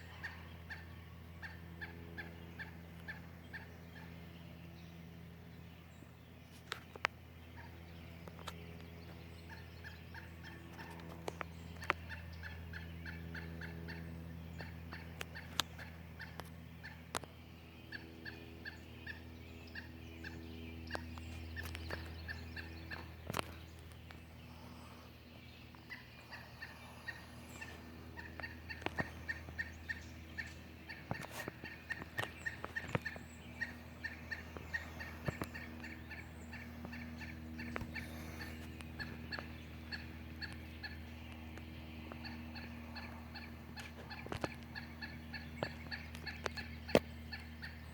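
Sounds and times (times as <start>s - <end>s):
steady low hum: 0.0s - 47.9s
woodpecker rattling alarm calls: 0.2s - 4.4s, 8.4s - 17.0s, 17.8s - 24.8s, 25.7s - 47.9s
woodpecker tapping: 25.8s - 47.8s.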